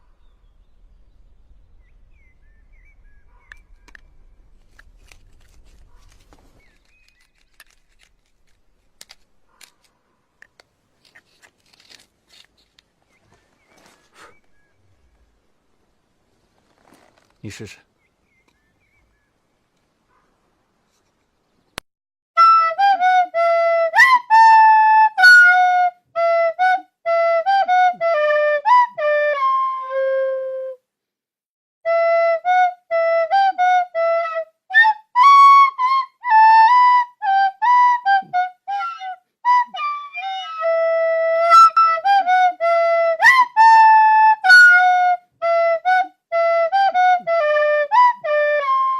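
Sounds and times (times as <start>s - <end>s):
woodwind melody: 22.4s - 30.8s, 31.8s - 48.9s.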